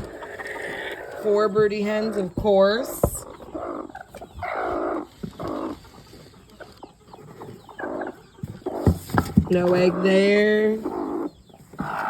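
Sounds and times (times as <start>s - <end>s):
hen giving raspy calls: 0.0s - 6.1s, 9.6s - 12.0s.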